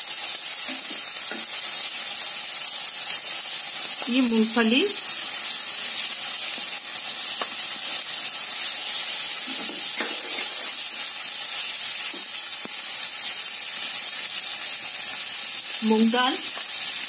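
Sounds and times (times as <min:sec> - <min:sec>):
vegetables sizzling in hot fat: 0:00.0 - 0:17.0
spatula scraping a pan: 0:09.4 - 0:10.8.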